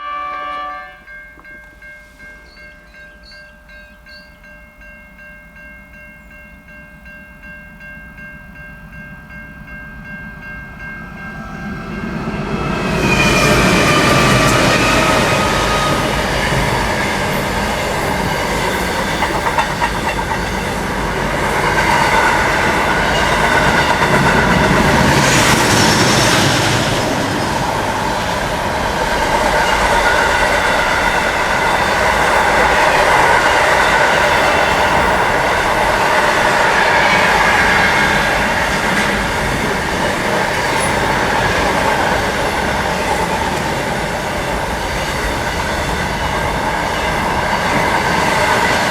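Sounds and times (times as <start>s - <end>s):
train wheels clattering over rails: 12.1s - 48.9s.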